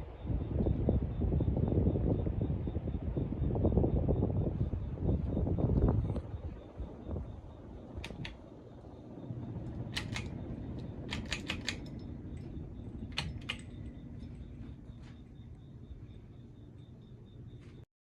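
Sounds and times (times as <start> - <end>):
ceiling fan humming: 0.0 - 17.9
sharp clicks: 8.0 - 8.4, 9.6 - 15.6.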